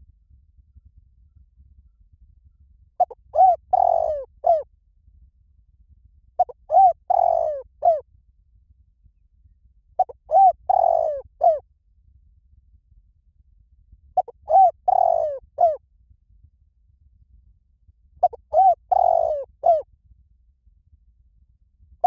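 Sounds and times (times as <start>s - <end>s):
dove cooing: 3.0s - 4.6s, 6.4s - 8.0s, 10.0s - 11.6s, 14.2s - 15.8s, 18.2s - 19.8s.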